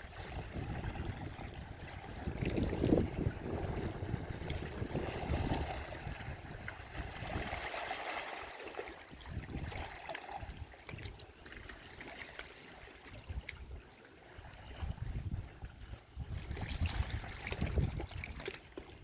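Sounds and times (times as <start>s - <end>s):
wind rumbling on microphone: 0.0s - 8.4s, 9.1s - 11.7s, 13.1s - 19.0s
sea waves washing on shore: 0.0s - 13.5s.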